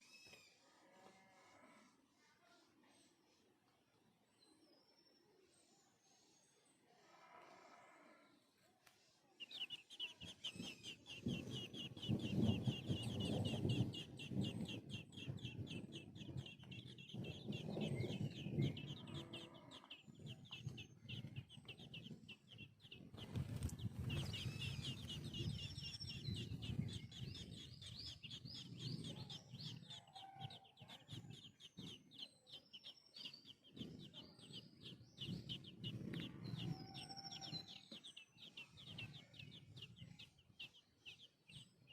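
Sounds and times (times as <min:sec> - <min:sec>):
bird chirping rapidly: 0:09.4 - 0:41.9.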